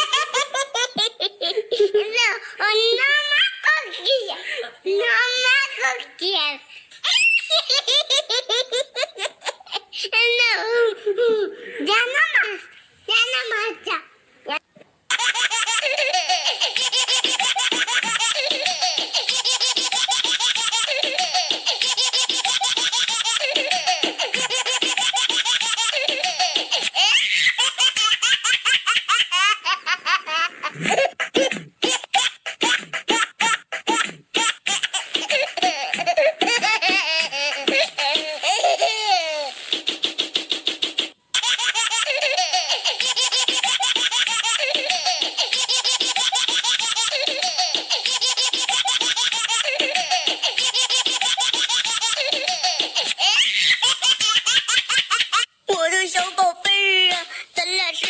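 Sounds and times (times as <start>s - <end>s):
baby laughing: 0.0s - 4.6s, 7.0s - 11.8s, 15.1s - 39.9s, 41.3s - 55.5s
child squealing: 7.0s - 7.6s
music: 39.6s - 41.2s.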